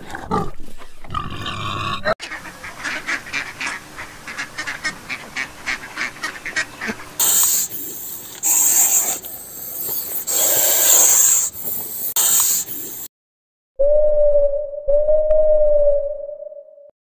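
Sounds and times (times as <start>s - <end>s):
waterfowl honking: 2.2s - 7.2s
loud hissing noise: 7.2s - 13.1s.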